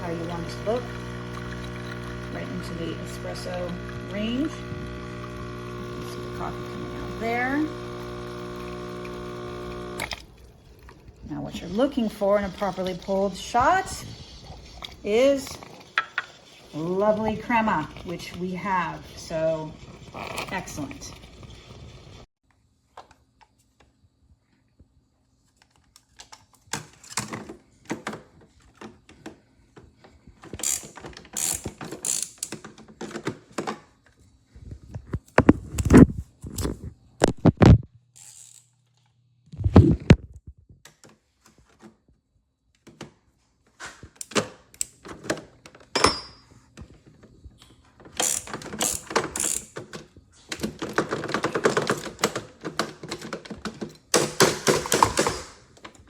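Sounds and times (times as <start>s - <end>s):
hard objects clicking and knocking: 48.0s - 56.0s.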